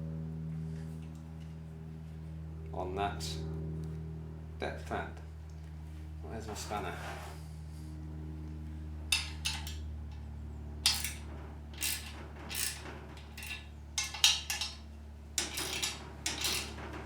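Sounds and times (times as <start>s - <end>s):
steady low hum: 0.0s - 17.0s
spanner clinking on metal: 9.1s - 10.2s, 10.8s - 17.0s.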